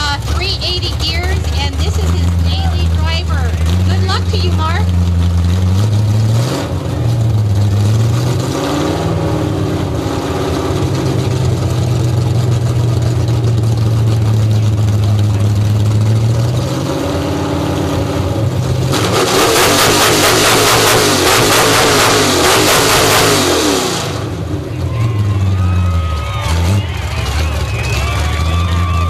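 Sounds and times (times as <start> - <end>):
hot rod engine revving: 0.0 - 29.0.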